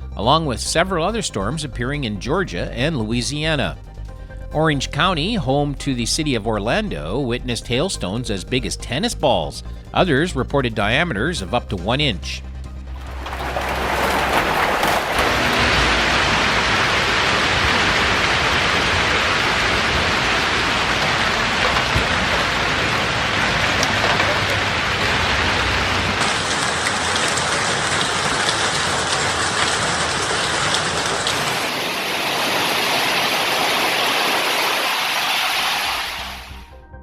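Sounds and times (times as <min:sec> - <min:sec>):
hail and heavy rain pelting: 0:12.9 - 0:36.6.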